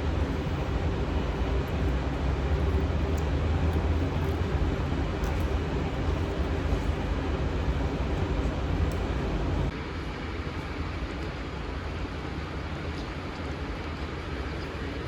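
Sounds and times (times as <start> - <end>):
steady low rumble: 0.0 - 9.7.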